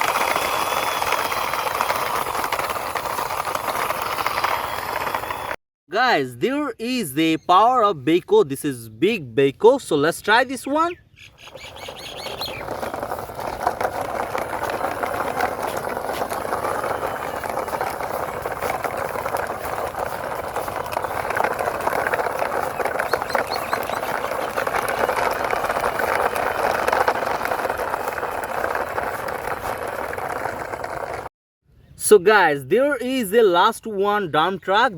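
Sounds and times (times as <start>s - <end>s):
plastic toy rattling and scraping: 0.0s - 5.6s, 11.6s - 31.3s.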